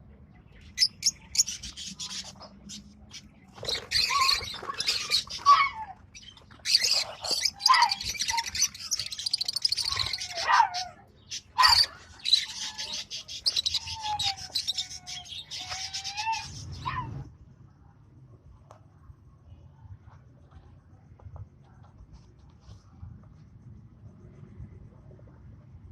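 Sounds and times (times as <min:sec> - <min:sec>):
lovebirds chattering: 0:00.2 - 0:16.9
shrill bird calls: 0:00.7 - 0:17.3.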